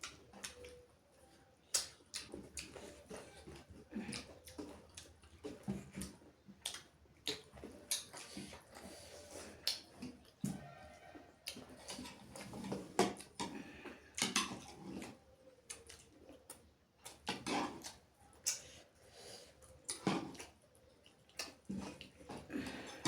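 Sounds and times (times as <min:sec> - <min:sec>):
chewing and lip smacking: 0:00.0 - 0:00.9, 0:01.6 - 0:23.0.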